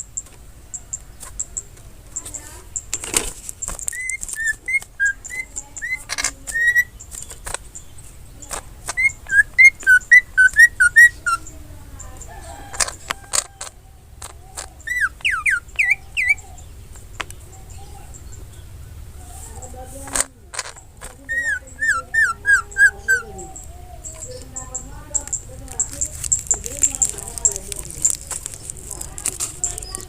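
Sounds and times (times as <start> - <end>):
bird clicks: 0.0 - 18.4, 19.6 - 30.0
bird whistling song: 3.6 - 19.4, 20.6 - 28.8.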